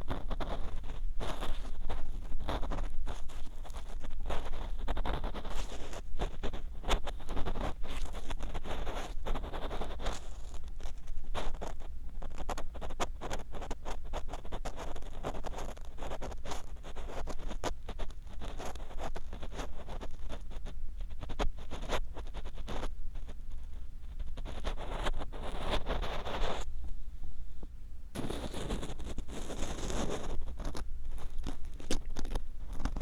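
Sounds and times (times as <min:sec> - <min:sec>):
low steady hum: 0:00.0 - 0:33.0
ear pick scraping microphone: 0:15.2 - 0:26.9, 0:28.2 - 0:33.0.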